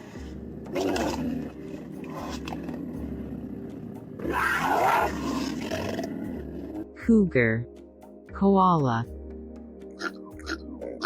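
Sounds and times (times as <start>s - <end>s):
cougar rough call: 0.2s - 6.8s.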